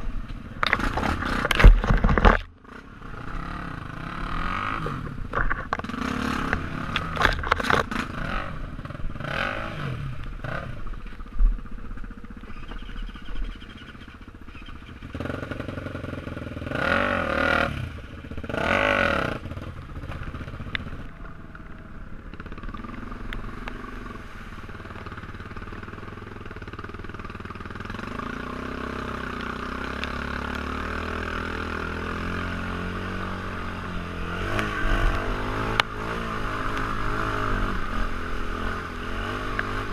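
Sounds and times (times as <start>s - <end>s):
motorcycle engine revving: 0.0s - 39.9s
sharp knocks and clatter: 0.6s - 2.5s.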